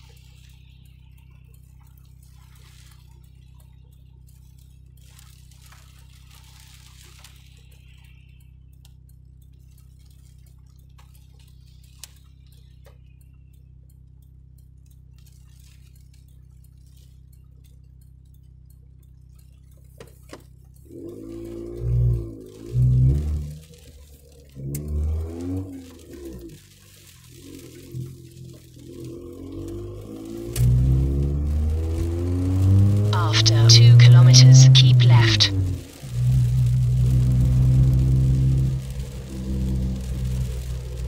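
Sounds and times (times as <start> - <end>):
car engine and road drone: 0.0 - 13.5, 18.5 - 41.0
light ticks: 0.0 - 34.8, 35.5 - 41.0.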